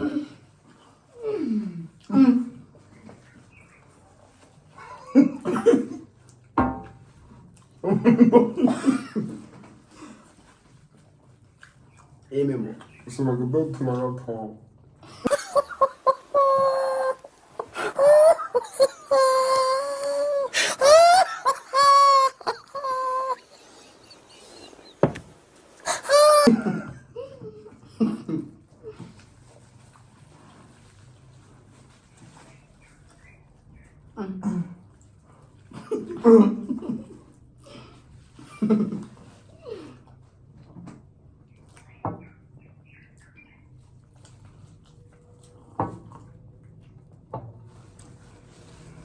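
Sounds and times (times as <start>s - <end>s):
people laughing and exclaiming: 15.3s - 25.0s
person wailing: 16.1s - 23.6s, 25.8s - 26.8s.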